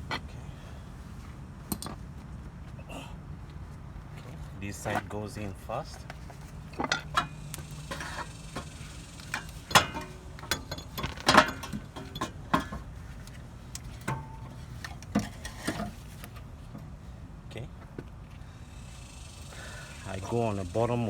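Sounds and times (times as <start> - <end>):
metal parts clinking and knocking: 6.7 - 12.9.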